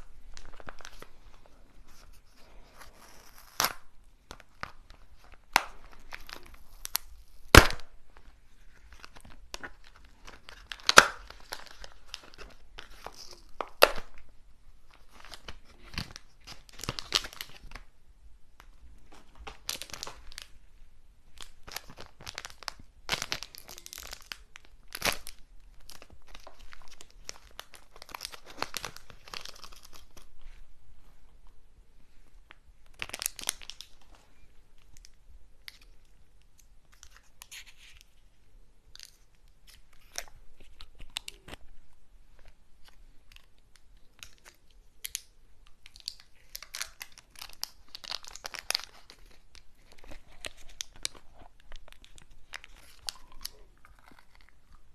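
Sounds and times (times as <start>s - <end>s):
snack packaging crinkling: 8.8s - 14.3s, 21.4s - 30.4s, 32.9s - 34.2s, 42.8s - 54.9s.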